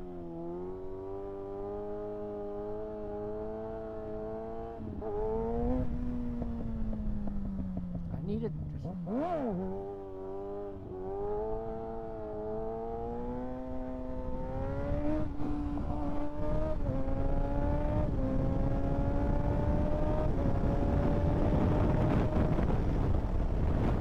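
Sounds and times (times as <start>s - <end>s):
motorcycle engine accelerating: 0.0s - 24.0s
wind rush: 16.5s - 24.0s.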